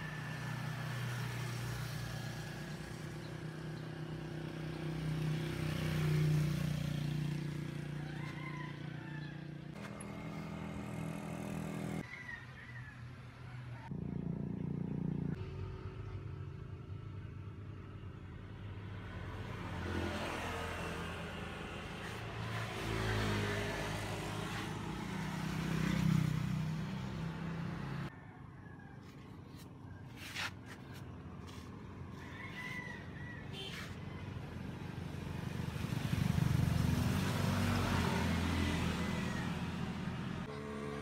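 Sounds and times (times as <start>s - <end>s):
vehicle engine running: 9.8s - 12.0s.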